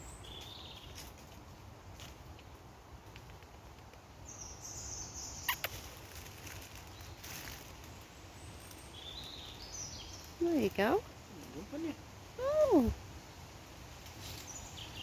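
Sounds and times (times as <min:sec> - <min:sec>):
small animal chirping: 0:05.4 - 0:06.0.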